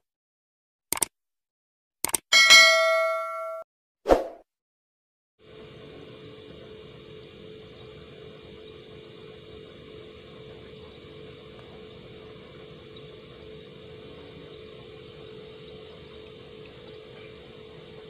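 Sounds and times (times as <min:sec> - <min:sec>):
refrigerator compressor humming: 0:05.4 - 0:18.0.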